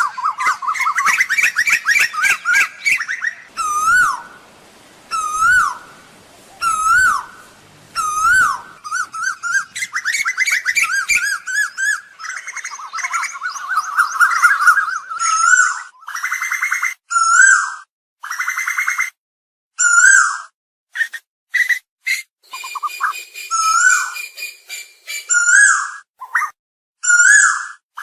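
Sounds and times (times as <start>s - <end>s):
koel calling: 0.0s - 16.3s.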